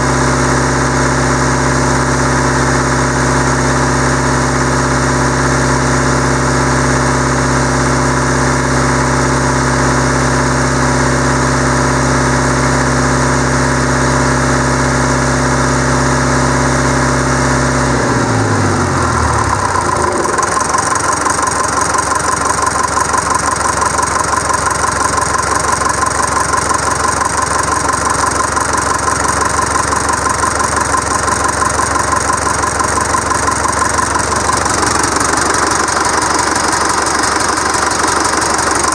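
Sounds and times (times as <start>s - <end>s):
diesel engine running and idling: 0.0s - 38.9s.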